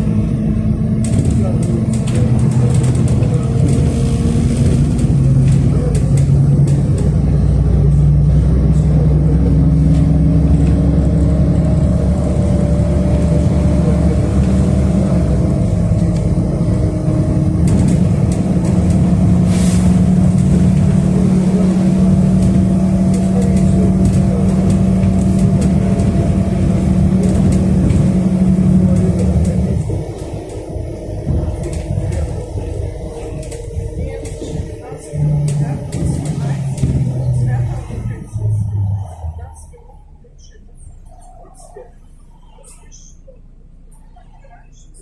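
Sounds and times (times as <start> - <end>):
bus engine humming and whining: 0.0 - 45.0.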